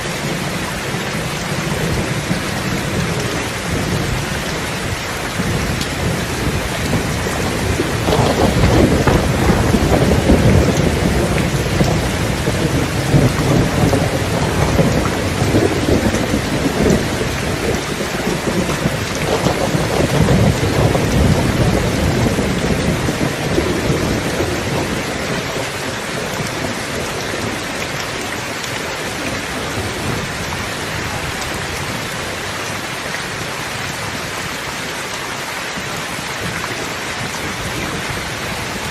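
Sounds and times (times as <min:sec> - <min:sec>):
thunder rumbling: 0:00.0 - 0:34.5
steady rain falling: 0:00.0 - 0:38.9.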